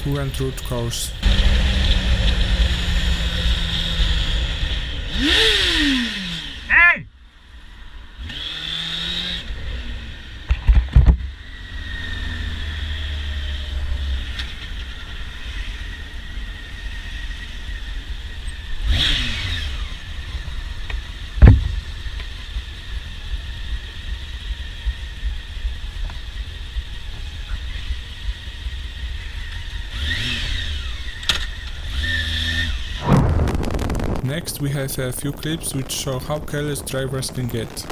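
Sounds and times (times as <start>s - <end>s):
wind and road noise: 0.0s - 6.7s, 7.5s - 37.9s
passing traffic: 0.0s - 10.5s
motorcycle engine running: 1.1s - 6.7s.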